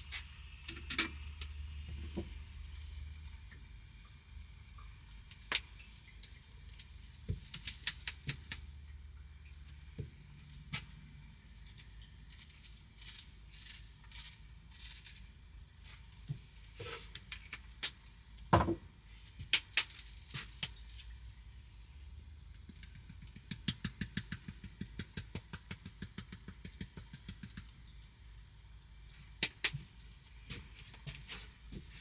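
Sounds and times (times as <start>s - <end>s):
sharp clicks and knocks: 22.6s - 27.8s.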